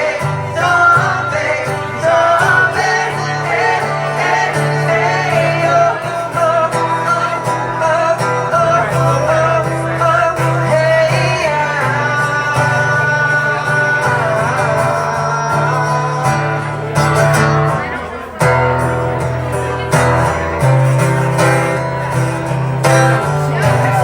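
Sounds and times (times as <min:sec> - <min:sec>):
person singing: 0:00.0 - 0:18.2
guitar accompaniment: 0:00.0 - 0:24.0.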